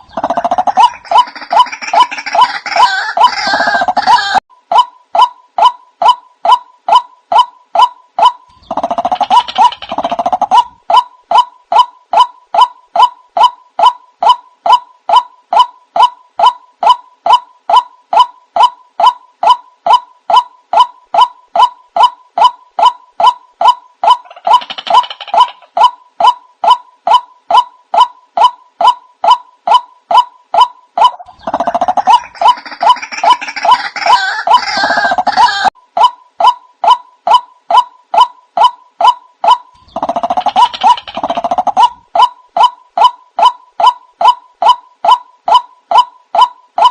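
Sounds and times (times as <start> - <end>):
waterhen calling: 0.0 - 4.4, 26.7 - 35.8.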